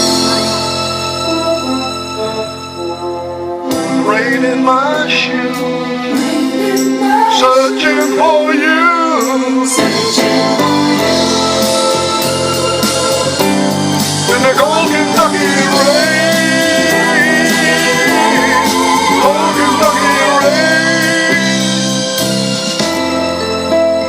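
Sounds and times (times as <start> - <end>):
instrumental accompaniment: 0.0 - 24.0
man singing: 3.7 - 22.2.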